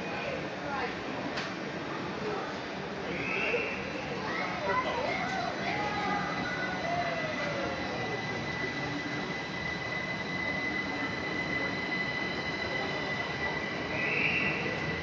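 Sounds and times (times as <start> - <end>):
train rumbling: 4.0 - 15.0
high-pitched squeal: 6.4 - 15.0.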